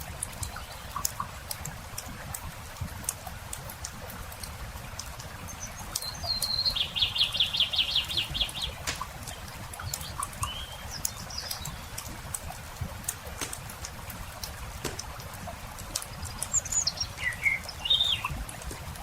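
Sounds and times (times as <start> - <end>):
campfire crackling: 0.0 - 19.0
songbird singing a trill: 5.5 - 8.9, 9.8 - 12.1, 16.1 - 18.4
bird chirps: 5.5 - 9.0, 9.8 - 12.1, 16.1 - 18.4.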